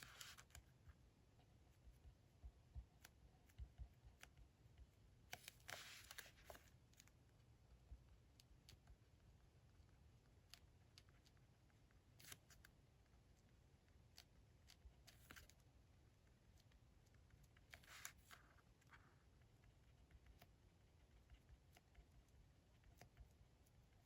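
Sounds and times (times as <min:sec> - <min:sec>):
paper rustling: 0:00.0 - 0:00.6, 0:05.3 - 0:06.7.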